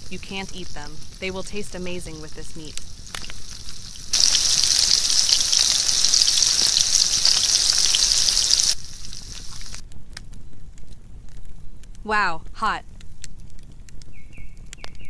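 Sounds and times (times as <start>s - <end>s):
food sizzling: 0.0s - 9.9s
faint crackling: 0.0s - 12.1s.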